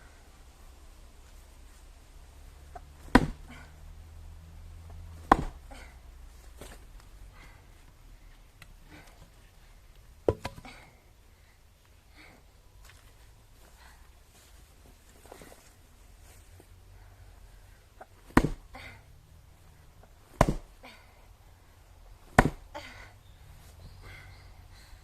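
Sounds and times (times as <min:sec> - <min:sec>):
axe chopping firewood: 0:02.7 - 0:03.6, 0:05.1 - 0:05.8, 0:10.2 - 0:10.8, 0:18.2 - 0:18.7, 0:20.2 - 0:20.8, 0:22.2 - 0:22.8.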